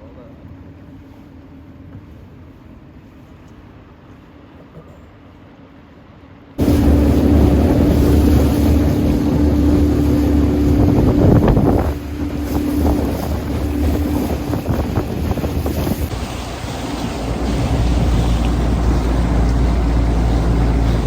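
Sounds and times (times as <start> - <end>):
outboard motor running: 6.6 - 21.0
water rushing past: 6.6 - 21.0
wind buffeting microphone: 6.6 - 21.0.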